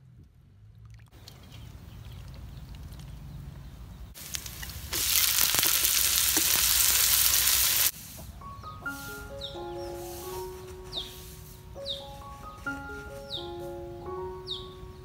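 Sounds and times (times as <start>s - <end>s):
food sizzling in a wok: 4.2s - 8.2s.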